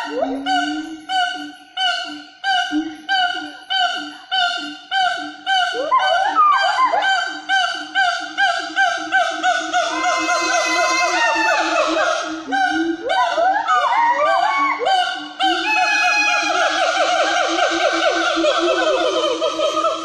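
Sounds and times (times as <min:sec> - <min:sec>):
gliding animal calls: 0:00.0 - 0:20.0
loud honking animal calls: 0:05.8 - 0:12.9.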